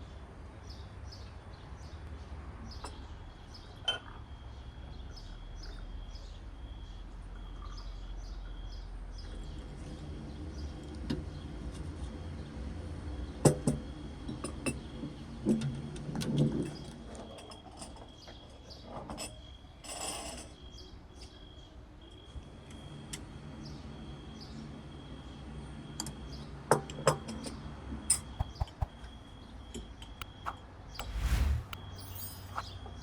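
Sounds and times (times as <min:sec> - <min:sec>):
small birds chirping: 0:28.4 - 0:28.9.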